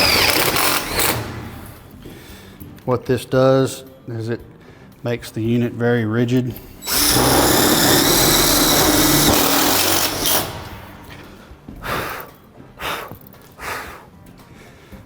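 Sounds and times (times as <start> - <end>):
power nut driver running screw: 0.0 - 1.9, 6.8 - 11.3.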